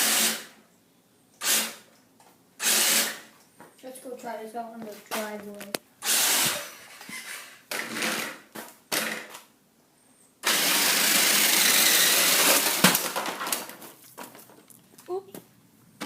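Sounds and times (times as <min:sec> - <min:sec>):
toy car electric motor whirring: 0:10.4 - 0:12.8.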